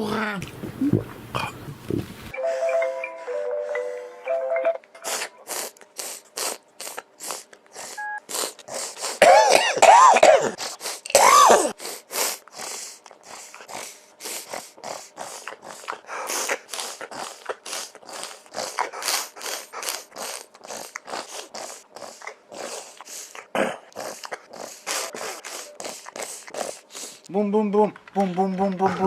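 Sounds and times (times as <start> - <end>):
person snorting like a pig: 5.0 - 27.3.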